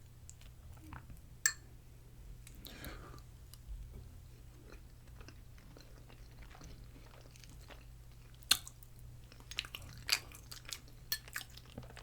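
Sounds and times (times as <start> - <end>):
chewing crunchy food: 4.3 - 12.0.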